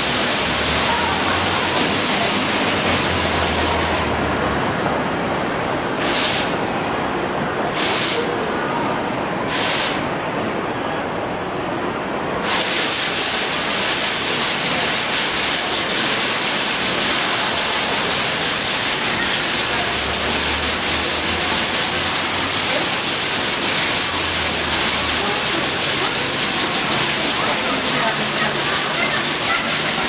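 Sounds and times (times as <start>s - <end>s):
water pouring and splashing: 0.0s - 4.2s, 12.4s - 30.0s.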